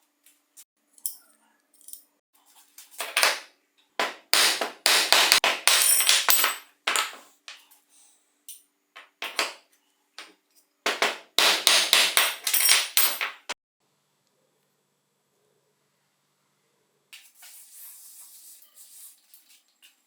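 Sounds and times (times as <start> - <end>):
tools clinking on metal: 12.1 - 13.5.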